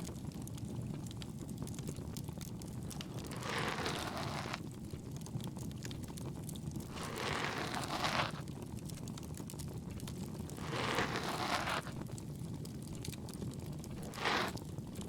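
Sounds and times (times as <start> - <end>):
bonfire crackling: 0.0 - 15.0
ear pick scraping inside ear: 2.9 - 4.6, 6.9 - 8.4, 10.5 - 12.0, 13.9 - 14.6.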